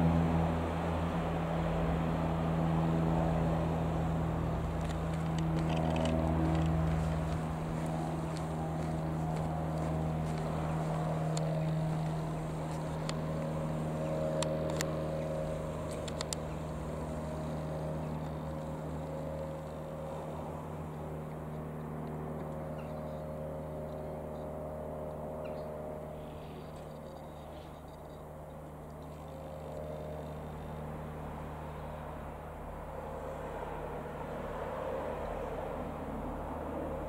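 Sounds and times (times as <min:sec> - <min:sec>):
aircraft piston engine running: 0:00.0 - 0:37.0
light clicks: 0:15.8 - 0:16.5.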